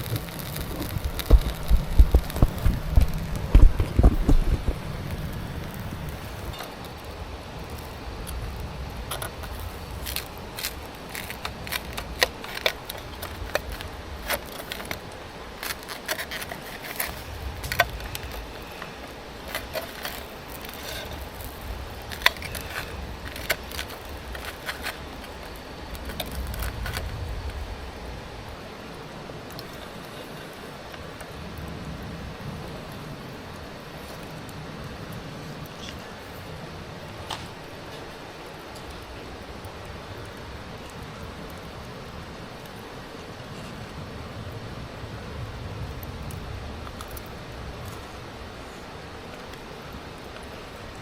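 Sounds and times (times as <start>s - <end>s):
low rumble: 0.0s - 10.5s
sharp pops and clicks: 0.0s - 27.6s
wood fire crackling: 0.0s - 51.0s.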